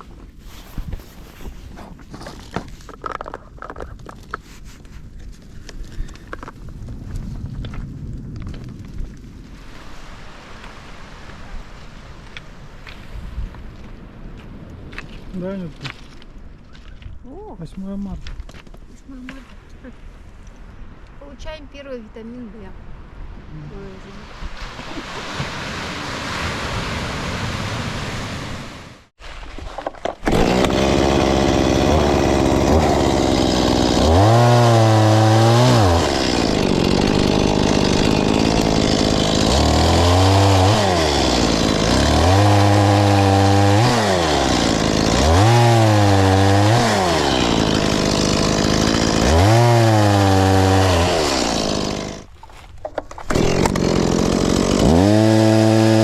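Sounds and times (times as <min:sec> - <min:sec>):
chainsaw cutting wood: 0:30.0 - 0:52.4, 0:53.1 - 0:56.0.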